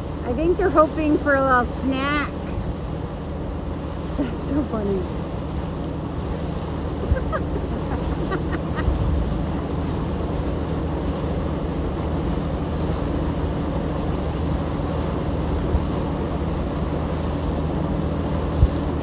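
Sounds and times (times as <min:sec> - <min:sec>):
boat engine running: 0:00.0 - 0:19.0
water wash: 0:00.0 - 0:19.0
wind on microphone: 0:06.8 - 0:10.7.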